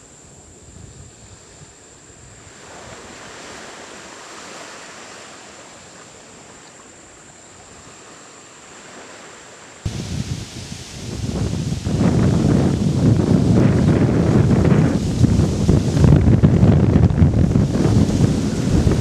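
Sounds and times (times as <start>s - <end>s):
steady rushing noise: 9.7s - 19.0s.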